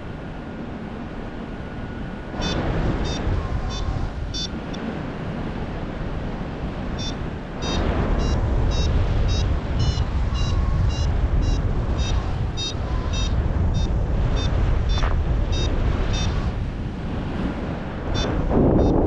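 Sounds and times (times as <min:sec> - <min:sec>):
wind on microphone: 0:00.0 - 0:19.0
variometer beeping: 0:02.4 - 0:04.8, 0:06.9 - 0:16.5, 0:18.2 - 0:19.0.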